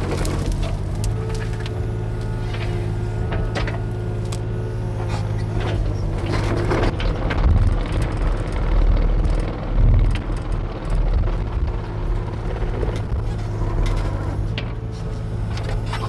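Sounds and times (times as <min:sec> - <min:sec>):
branches snapping and knocking: 0:00.0 - 0:04.5
excavator diesel engine running: 0:00.0 - 0:16.0.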